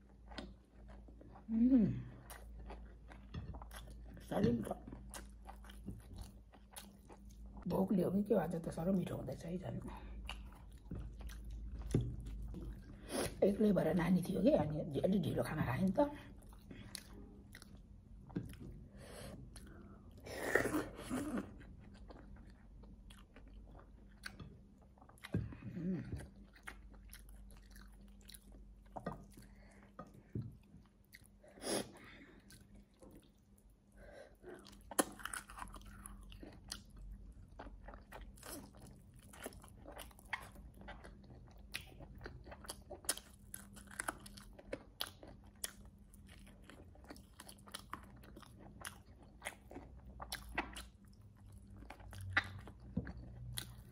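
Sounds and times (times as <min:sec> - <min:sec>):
person chewing meat: 0:00.0 - 0:01.5, 0:02.1 - 0:07.7, 0:09.9 - 0:13.4, 0:16.4 - 0:31.6, 0:32.3 - 0:53.9.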